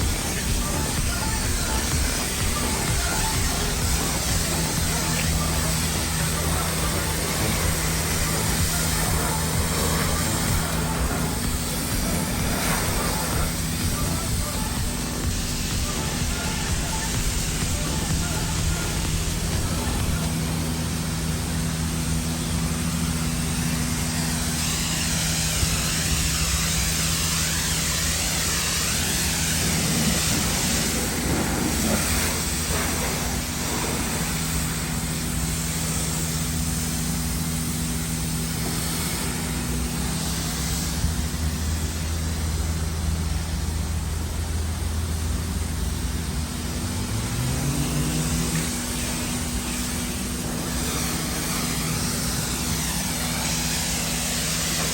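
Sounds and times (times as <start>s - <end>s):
pressure washer hum: 0.0s - 54.9s
water spray hissing: 0.0s - 54.9s
short rising whine: 36.3s - 54.6s.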